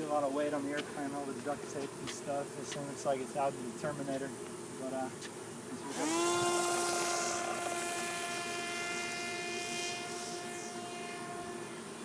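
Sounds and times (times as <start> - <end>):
model plane electric motor buzzing: 5.7 - 12.0.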